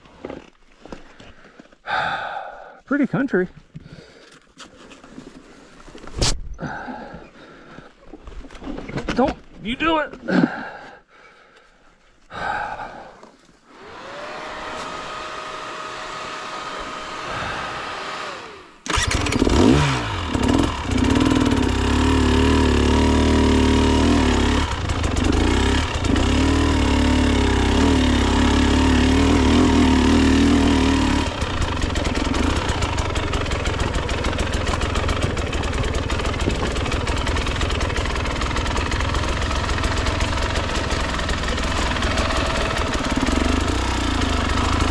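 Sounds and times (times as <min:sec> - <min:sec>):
dirt bike engine revving: 0:13.7 - 0:44.9.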